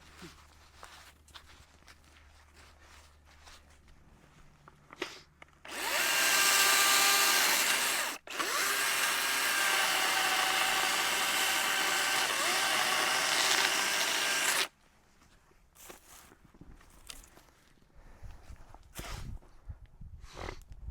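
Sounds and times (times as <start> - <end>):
power tool running: 5.7 - 14.7.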